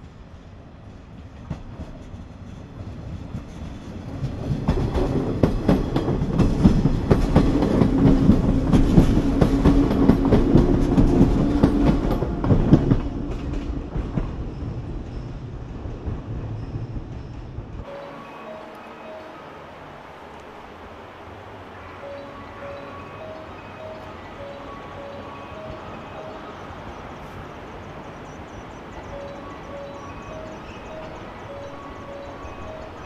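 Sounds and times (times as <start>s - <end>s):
electric train passing: 0.0s - 33.0s.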